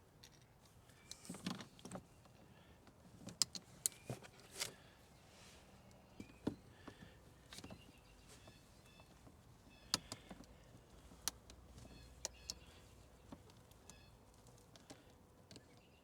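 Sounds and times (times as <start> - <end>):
faint high chirps: 13.8 - 14.2.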